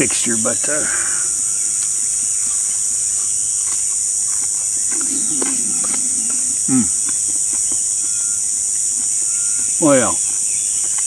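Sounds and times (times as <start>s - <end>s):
high-pitched insect chorus: 0.0s - 11.0s
low voice hum or grunt: 4.9s - 7.8s.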